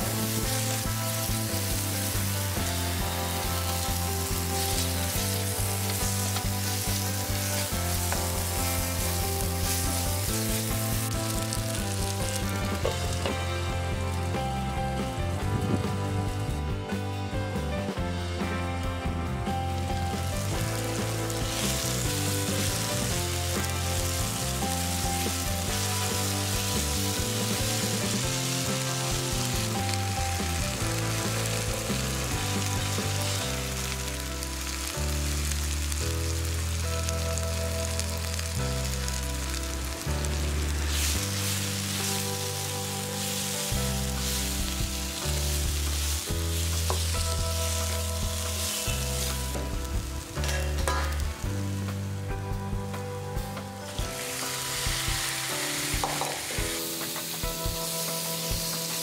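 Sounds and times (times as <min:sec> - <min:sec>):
masala sizzling in oil: 0:00.0 - 0:16.8, 0:19.2 - 0:59.0
background music with low notes: 0:00.0 - 0:59.0.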